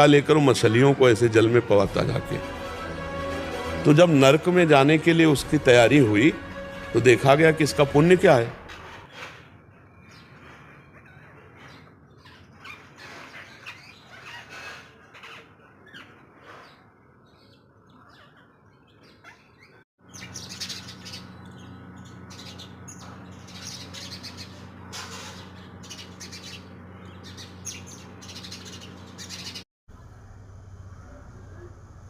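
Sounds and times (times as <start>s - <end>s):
small birds chirping: 9.9s - 29.7s
steady low hum: 20.1s - 32.0s.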